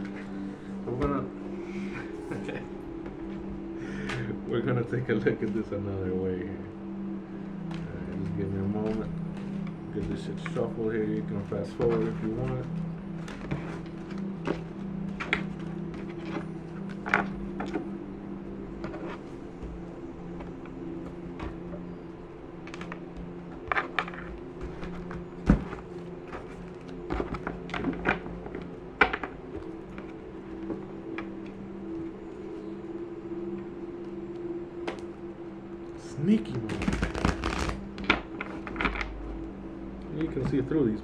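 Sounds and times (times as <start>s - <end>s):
low hum: 0.0s - 41.0s
cards being shuffled: 6.9s - 32.1s, 36.5s - 39.6s.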